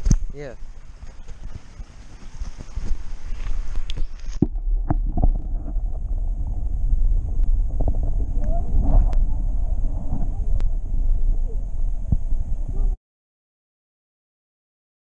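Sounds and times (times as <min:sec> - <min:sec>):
muffled underwater rumble: 0:00.0 - 0:13.0
underwater thumps: 0:02.5 - 0:12.8.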